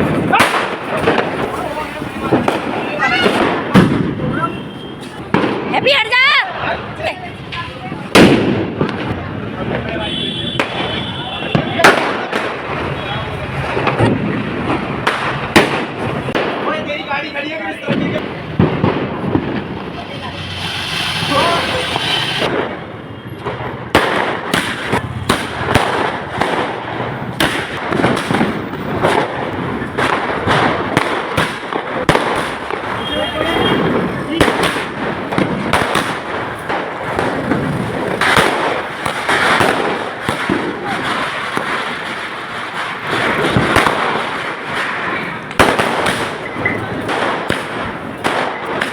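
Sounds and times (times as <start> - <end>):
firecrackers banging and crackling: 0.0 - 48.9.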